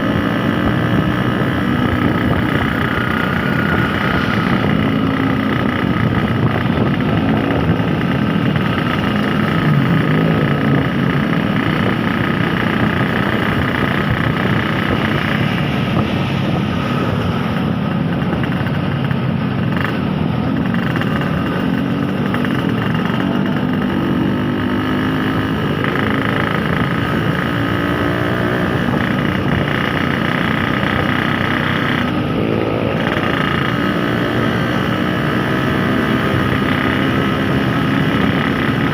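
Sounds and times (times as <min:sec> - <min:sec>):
two-stroke motorcycle engine: 0:00.0 - 0:38.9
wind and road noise: 0:00.0 - 0:38.9.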